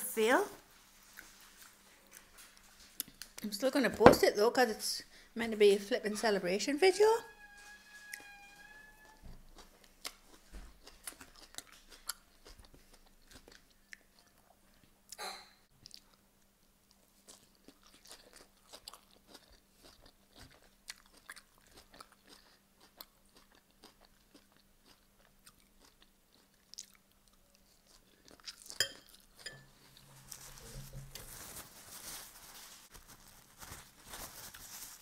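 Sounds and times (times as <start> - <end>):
chewing crunchy salad: 9.5 - 14.4, 15.8 - 31.3
paper towel rustling: 30.1 - 35.0.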